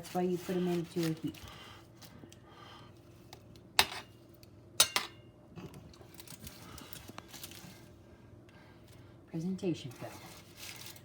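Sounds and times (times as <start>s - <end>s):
utensil clinking against dishes: 4.8s - 5.2s.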